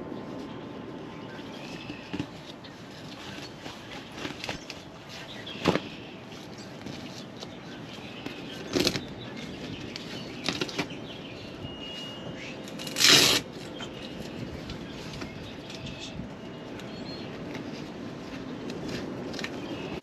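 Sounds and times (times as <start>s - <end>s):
plastic rustling and flapping: 1.4s - 11.0s.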